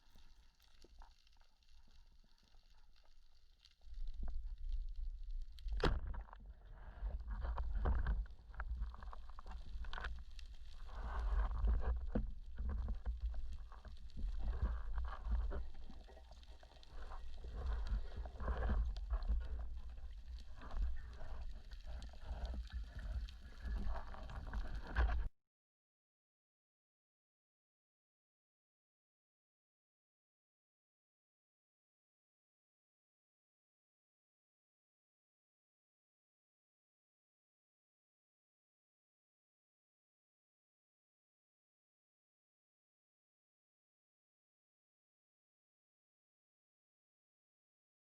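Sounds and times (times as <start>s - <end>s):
low rumbling water: 0.2s - 25.3s.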